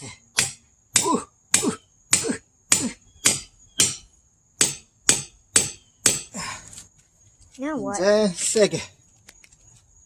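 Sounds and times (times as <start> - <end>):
hammer striking steel bit: 0.4 - 6.3.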